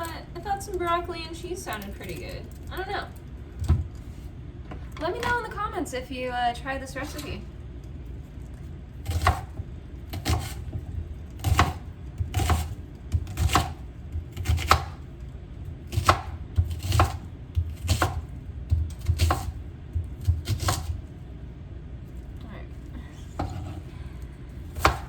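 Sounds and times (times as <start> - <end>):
knife chopping on cutting board: 9.0 - 15.0, 15.9 - 21.0, 23.4 - 23.8, 24.7 - 25.0.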